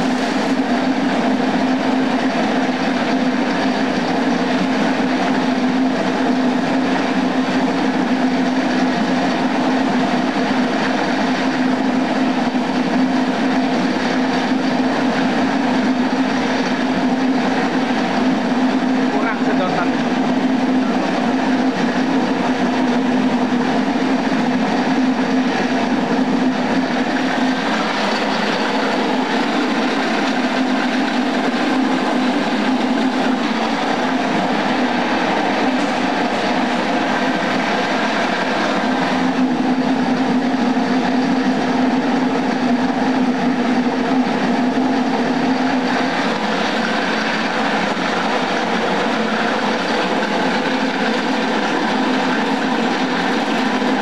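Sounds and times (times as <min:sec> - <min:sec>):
dense mechanical machine noise: 0:00.0 - 0:54.0
electric motor hum: 0:14.8 - 0:54.0.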